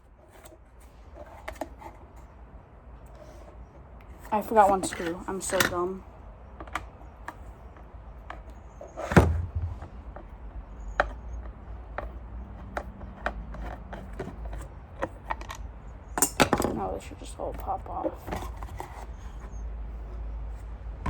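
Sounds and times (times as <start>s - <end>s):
plastic housing clicks and knocks: 8.2s - 10.3s.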